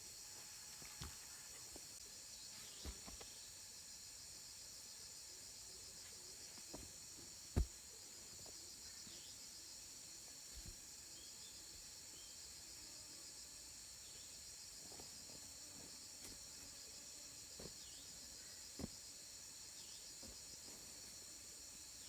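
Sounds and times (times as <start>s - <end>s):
insects chirring: 0.0s - 22.0s
dull thumps: 6.6s - 6.9s, 7.5s - 7.8s, 18.8s - 19.0s.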